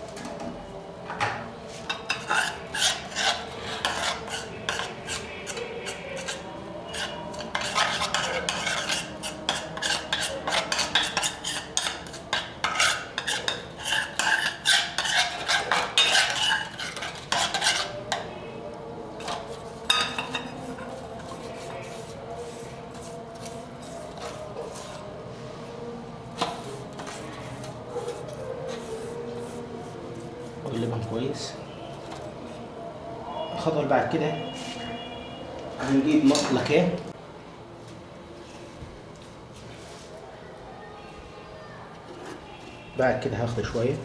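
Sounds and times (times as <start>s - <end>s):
utensil clinking against dish: 1.3s - 18.3s, 19.2s - 21.9s
utensil scraping paste in dish: 1.8s - 18.4s, 19.2s - 25.2s, 26.3s - 32.6s.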